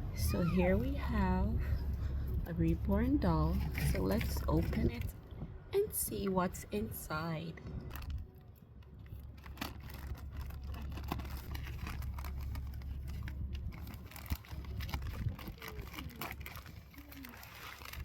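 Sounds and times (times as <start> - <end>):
steady low hum: 0.0 - 15.6
cardboard packaging rustling: 9.0 - 18.0.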